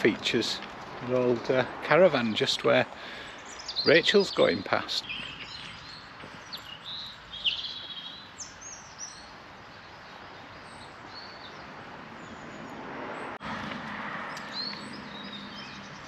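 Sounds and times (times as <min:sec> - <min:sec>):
small birds chirping: 0:00.0 - 0:16.0
steady outdoor hiss: 0:00.0 - 0:16.0.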